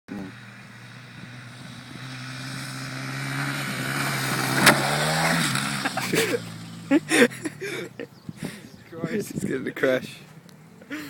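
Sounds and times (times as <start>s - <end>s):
dirt bike engine running: 0.1s - 8.0s.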